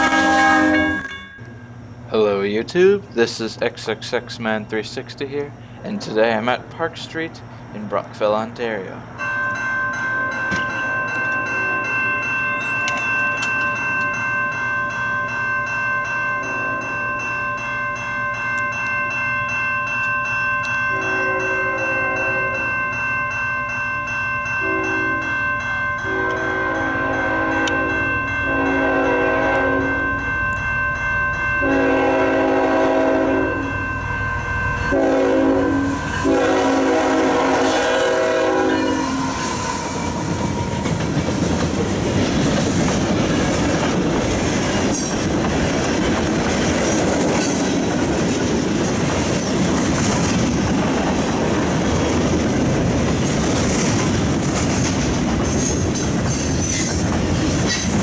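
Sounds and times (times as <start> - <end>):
locomotive air horn blasts: 0.0 - 1.1, 20.9 - 22.7, 24.6 - 25.2, 26.1 - 30.0, 31.6 - 33.7, 34.9 - 40.2
train wheels rushing on rails: 26.0 - 58.0.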